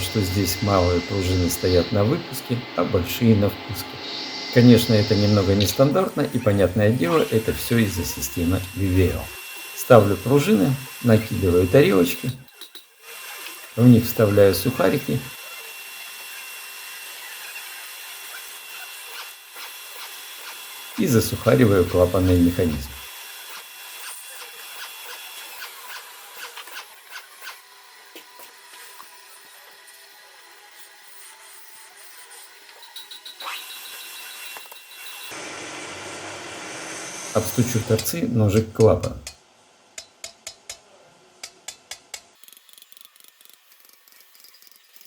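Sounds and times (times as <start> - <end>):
hammer tapping metal: 37.8 - 39.4, 40.0 - 40.8, 41.4 - 42.4
faint metallic clicks and scraping: 41.6 - 45.0.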